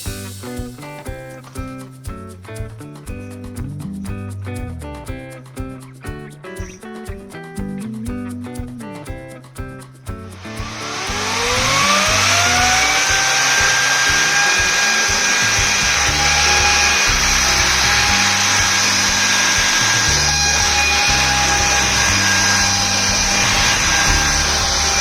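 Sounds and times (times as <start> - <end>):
rushing air: 10.4 - 25.0
fan motor whine: 10.6 - 25.0.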